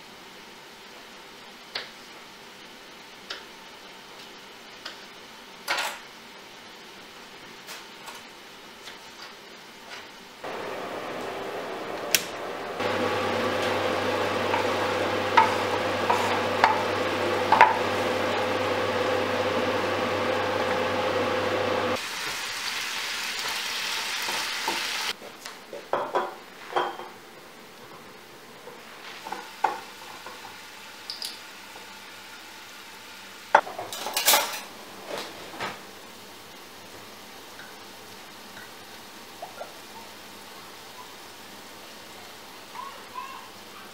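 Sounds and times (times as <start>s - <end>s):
food sizzling in a pan: 0.0s - 43.9s
clinks of utensils and dishes: 5.7s - 6.0s, 25.9s - 27.2s, 31.1s - 31.4s, 33.6s - 34.7s
steady hum: 10.4s - 22.0s.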